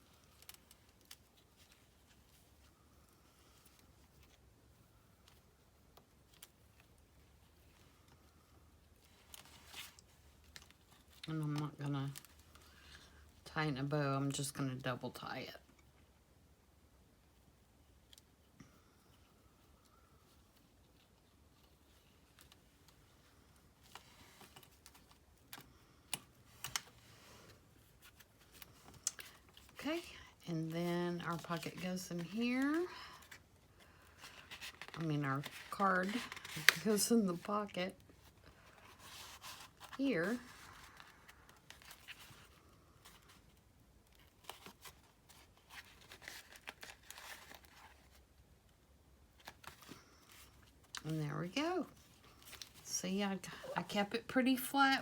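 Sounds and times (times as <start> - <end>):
paper tags and twine rustling: 19.9 - 48.4.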